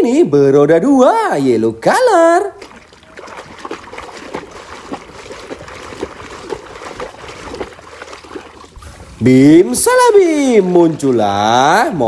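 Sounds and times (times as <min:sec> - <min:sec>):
water sloshing and trickling: 0:01.9 - 0:12.0
small knocks and splashes: 0:02.5 - 0:09.0.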